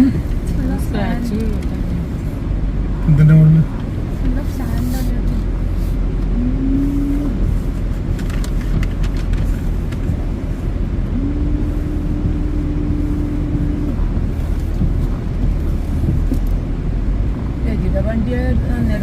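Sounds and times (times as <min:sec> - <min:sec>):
hum-like tone: 0:06.3 - 0:07.6, 0:11.0 - 0:15.0
strong wind on microphone: 0:06.3 - 0:17.5.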